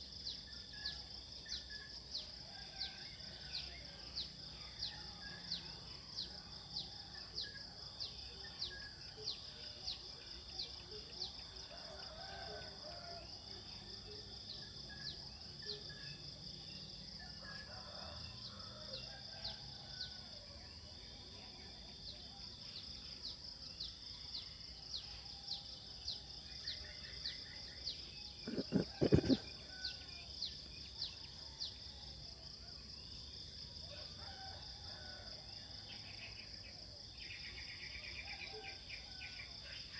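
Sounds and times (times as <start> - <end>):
faint bird calls: 28.4 - 29.6.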